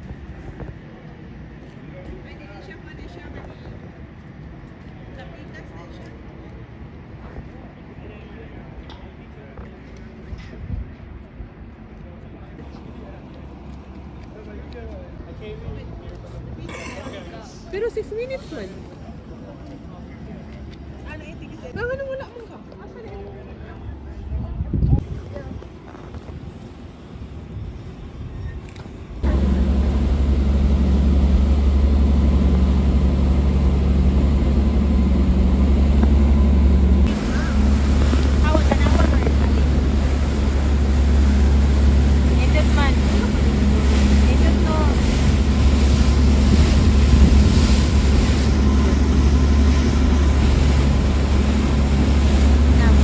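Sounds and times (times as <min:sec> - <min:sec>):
wind on microphone: 0:24.2 - 0:26.4, 0:27.4 - 0:53.0
ferry engine drone: 0:29.2 - 0:53.0.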